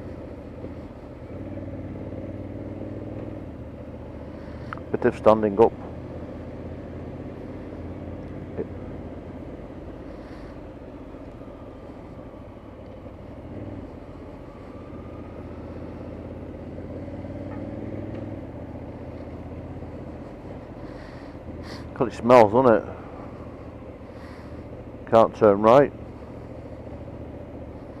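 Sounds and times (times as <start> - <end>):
motorcycle engine and road hum: 0.0 - 28.0.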